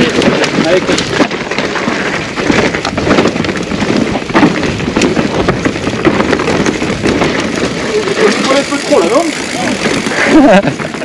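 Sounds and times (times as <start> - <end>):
bike chain and frame rattling: 0.0 - 11.0
bike tyres on dirt and roots: 0.0 - 11.0.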